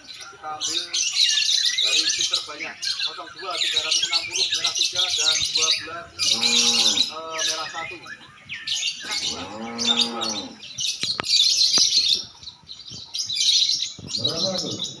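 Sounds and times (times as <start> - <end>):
lovebirds chattering: 0.0 - 15.0
drawn-out low bird call: 3.8 - 10.8.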